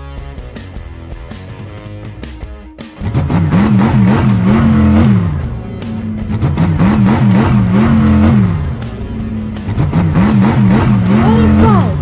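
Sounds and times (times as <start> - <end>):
background music: 0.0 - 12.0
cartoon engine revving effects: 9.8 - 12.0.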